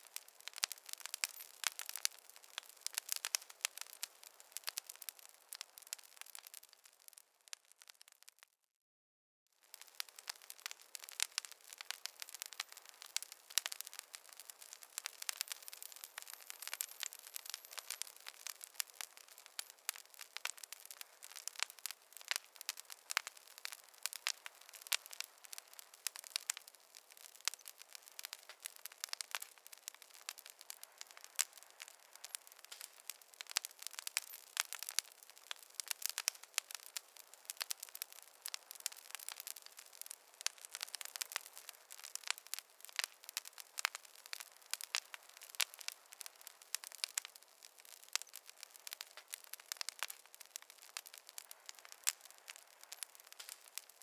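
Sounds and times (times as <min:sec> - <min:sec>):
campfire crackling: 0:00.0 - 0:08.5, 0:09.6 - 0:54.0.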